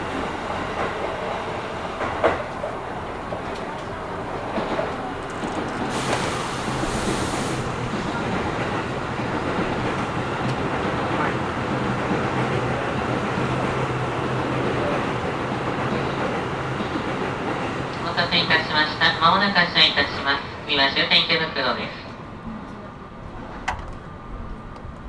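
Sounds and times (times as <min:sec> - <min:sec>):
train interior rushing noise: 0:00.0 - 0:25.0
brief air hiss: 0:05.9 - 0:07.8.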